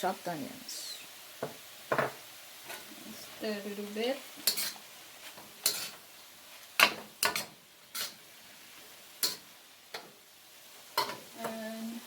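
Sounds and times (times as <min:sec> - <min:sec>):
utensil scraping a frying pan: 0:04.4 - 0:08.5.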